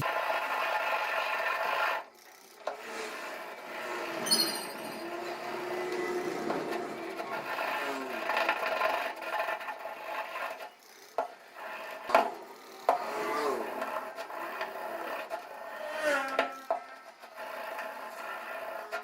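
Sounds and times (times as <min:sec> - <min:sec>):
hand tool scraping metal part: 0:04.0 - 0:05.3.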